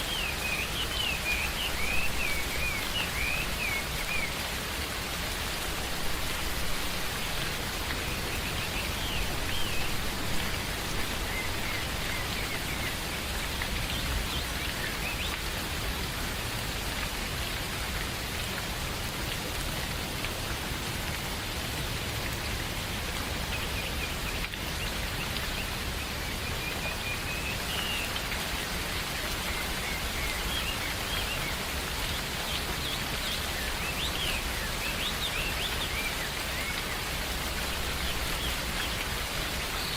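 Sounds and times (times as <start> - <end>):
rain falling in forest: 0.0 - 39.9
birds chirping: 5.1 - 15.4.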